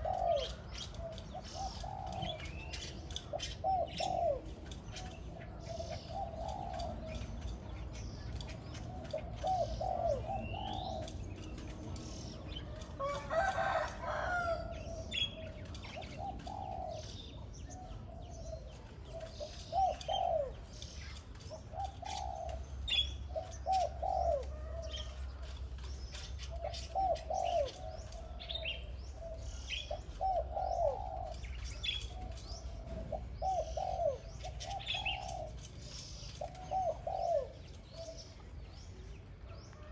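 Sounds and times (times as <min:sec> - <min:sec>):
dove cooing: 0:00.0 - 0:39.9
small birds chirping: 0:00.0 - 0:39.9.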